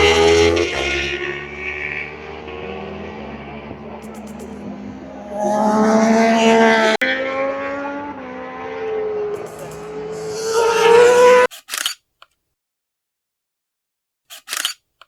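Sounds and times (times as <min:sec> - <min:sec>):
racing motorcycles passing: 0:00.0 - 0:11.5.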